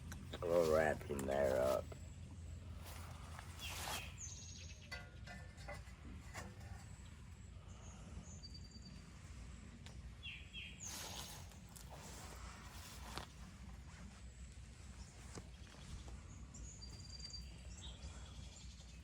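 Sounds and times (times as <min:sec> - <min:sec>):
steady low rumble: 0:00.0 - 0:16.9
soft rustle: 0:02.7 - 0:04.3, 0:10.8 - 0:16.3
bird chirps: 0:07.7 - 0:09.2, 0:15.6 - 0:19.0.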